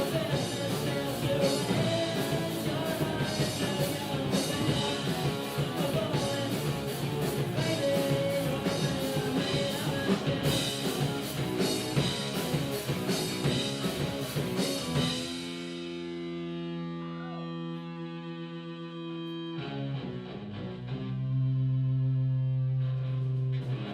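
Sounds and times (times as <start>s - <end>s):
drum kit: 0.0s - 17.4s
electric guitar: 0.0s - 23.9s.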